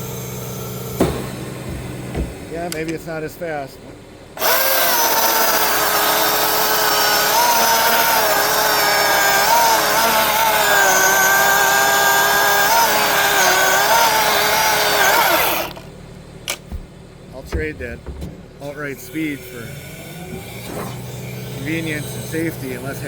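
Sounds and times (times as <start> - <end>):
electric chainsaw cutting wood: 4.4 - 15.9, 19.2 - 23.0.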